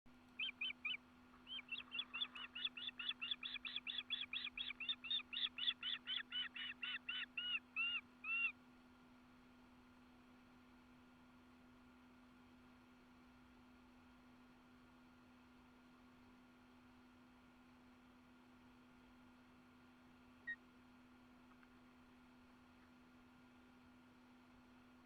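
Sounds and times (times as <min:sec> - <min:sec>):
steady low hum: 0:00.1 - 0:25.0
bird calling clear arched notes: 0:00.3 - 0:08.6, 0:20.4 - 0:20.7.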